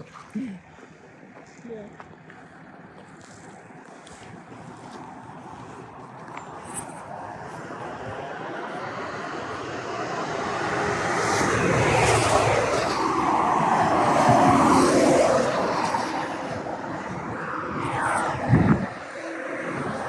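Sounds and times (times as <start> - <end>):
vehicle passing on road: 2.2 - 20.0.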